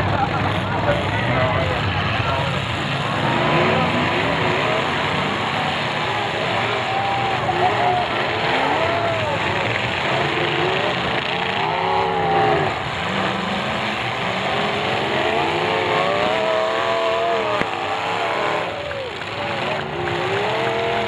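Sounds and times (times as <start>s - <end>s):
car engines revving: 0.0s - 21.0s
loud din: 0.0s - 21.0s.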